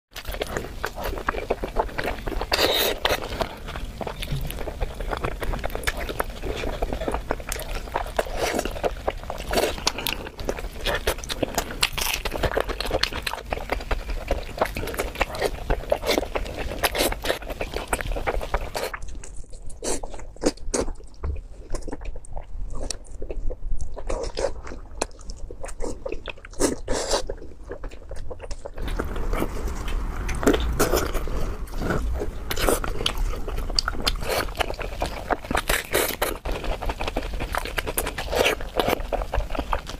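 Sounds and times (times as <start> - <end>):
chewing with mouth clicks and smacks: 0.1 - 39.9.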